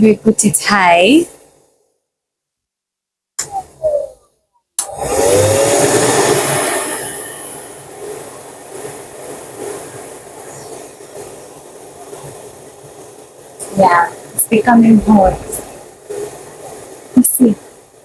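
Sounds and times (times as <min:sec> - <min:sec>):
hair dryer blowing air: 0:04.8 - 0:10.8.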